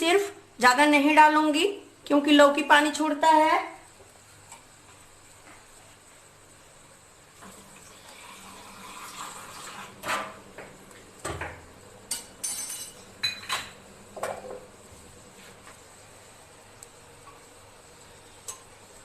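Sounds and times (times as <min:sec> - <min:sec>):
metal utensils clinking on pot: 0:12.1 - 0:13.7.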